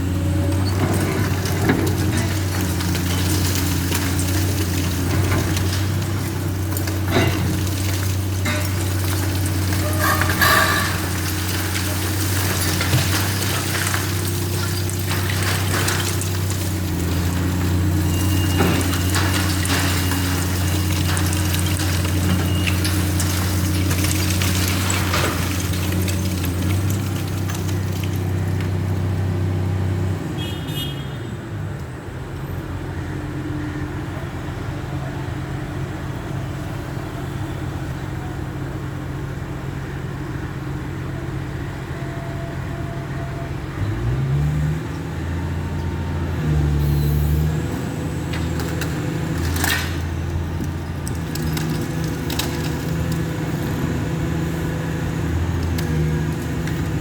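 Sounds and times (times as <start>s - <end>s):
demolition machine engine running: 0.0s - 30.2s, 34.1s - 57.0s.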